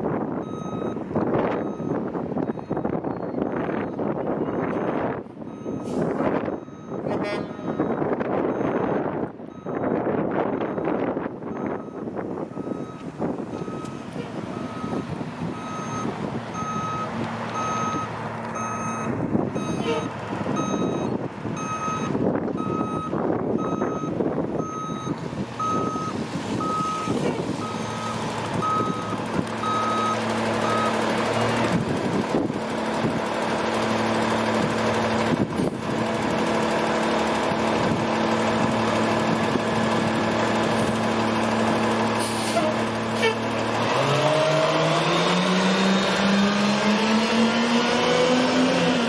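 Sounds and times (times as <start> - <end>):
diesel truck engine running: 0.0 - 49.0
reversing alarm beeping: 0.4 - 31.1.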